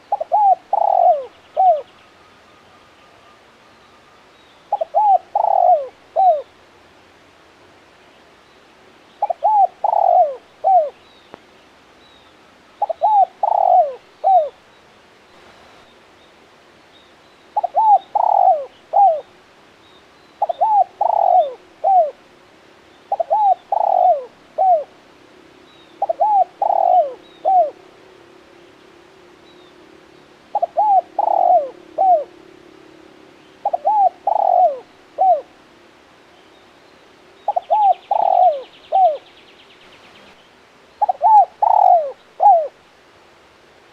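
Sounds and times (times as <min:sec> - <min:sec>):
dove cooing: 0:00.0 - 0:01.9, 0:04.7 - 0:06.5, 0:09.2 - 0:11.0, 0:12.8 - 0:14.6, 0:17.6 - 0:19.3, 0:20.4 - 0:22.2, 0:23.1 - 0:25.0, 0:26.0 - 0:27.8, 0:30.5 - 0:32.4, 0:33.6 - 0:35.5, 0:37.5 - 0:39.3, 0:41.0 - 0:42.8
small birds chirping: 0:00.0 - 0:06.6, 0:36.2 - 0:42.7.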